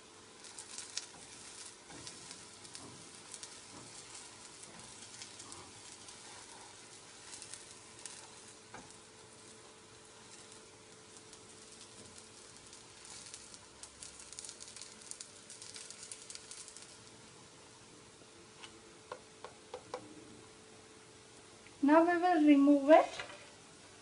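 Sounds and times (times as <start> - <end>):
food sizzling in oil: 0.0 - 24.0.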